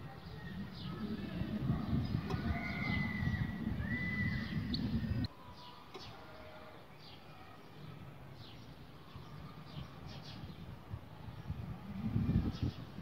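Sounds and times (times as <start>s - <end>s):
loud low rumble: 0.0s - 5.3s.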